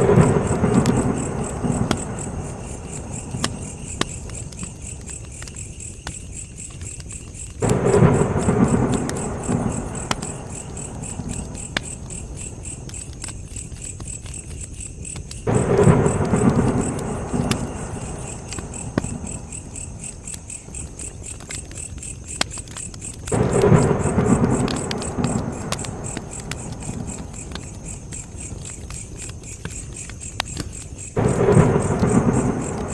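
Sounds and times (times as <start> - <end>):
campfire crackling and popping: 0.0 - 32.9
crickets chirping: 0.0 - 32.9.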